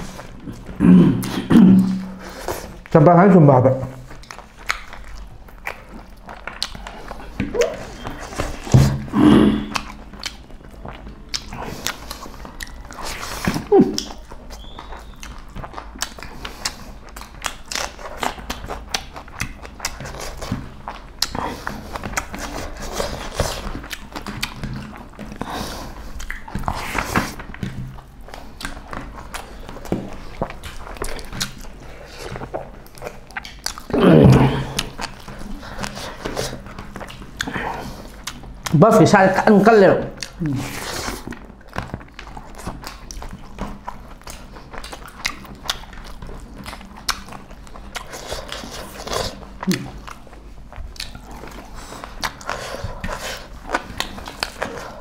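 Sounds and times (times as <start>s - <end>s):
people chewing: 0.0s - 55.0s
wet mouth clicks and smacks: 4.0s - 25.5s, 26.1s - 34.0s, 40.1s - 40.5s, 41.2s - 55.0s.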